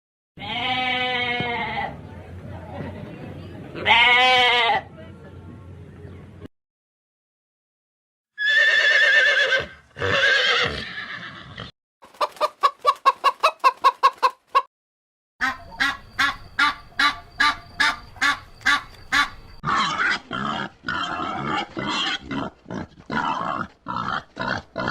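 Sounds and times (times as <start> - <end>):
horse whinnying: 8.4 - 11.7
poultry clucking: 12.0 - 14.7, 15.4 - 24.9.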